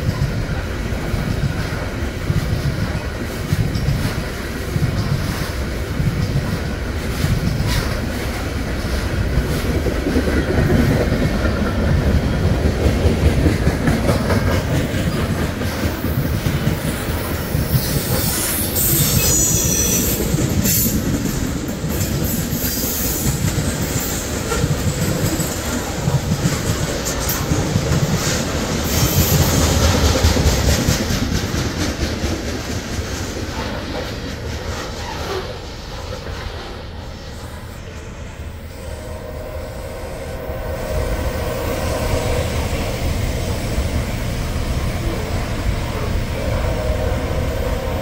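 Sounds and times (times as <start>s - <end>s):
train cars rumbling past: 0.0s - 48.0s
high wheel squeal: 17.7s - 20.3s.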